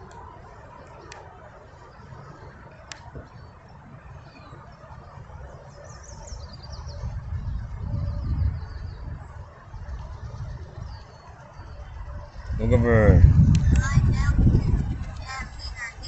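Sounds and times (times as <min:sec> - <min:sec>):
wind buffeting microphone: 0:00.0 - 0:16.0
low rumble: 0:11.7 - 0:16.0.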